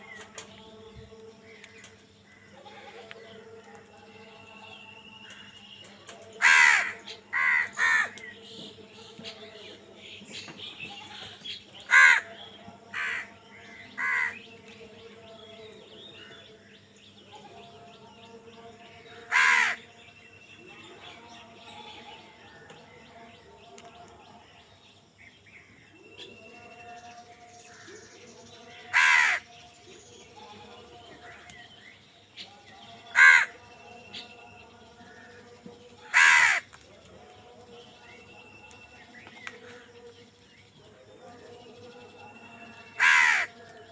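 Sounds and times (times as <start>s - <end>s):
crow cawing: 6.4s - 8.2s, 11.9s - 12.3s, 12.9s - 13.3s, 14.0s - 14.4s, 19.3s - 19.8s, 28.9s - 29.4s, 33.1s - 33.5s, 36.1s - 36.7s, 43.0s - 43.5s.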